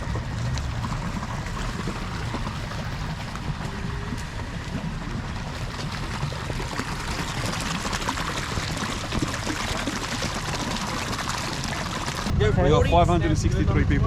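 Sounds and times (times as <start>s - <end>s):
low rumble: 0.0s - 9.8s.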